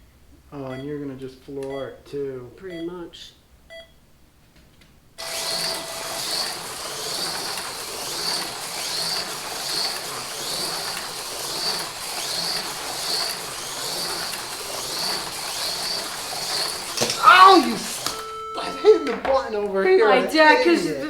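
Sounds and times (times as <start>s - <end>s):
slot cars rattling: 5.2s - 18.4s
slot car motors whining: 5.2s - 20.8s.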